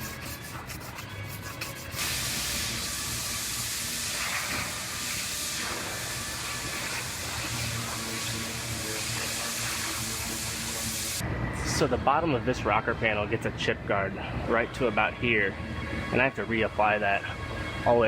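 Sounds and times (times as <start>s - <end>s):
compressed air hissing: 1.1s - 11.2s.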